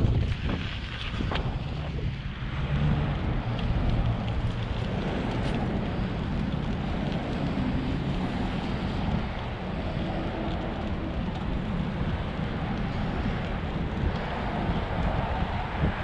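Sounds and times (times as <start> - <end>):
wind buffeting the microphone: 0.0 - 16.0
faint ticks: 3.5 - 15.2.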